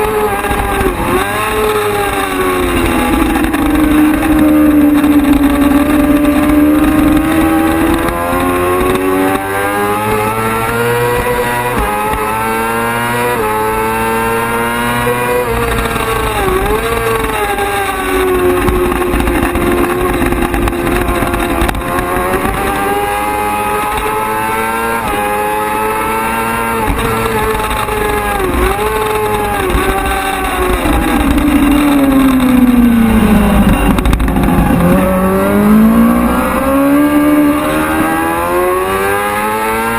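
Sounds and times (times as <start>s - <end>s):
racing motorcycle engine revving: 0.0s - 39.9s.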